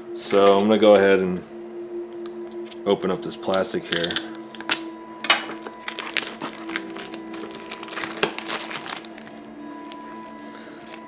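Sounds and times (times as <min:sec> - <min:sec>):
plastic wrapping crinkling: 0:04.0 - 0:11.0.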